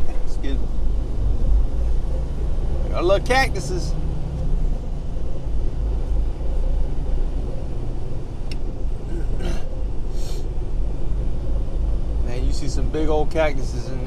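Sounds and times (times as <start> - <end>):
truck engine and road rumble: 0.0 - 14.0.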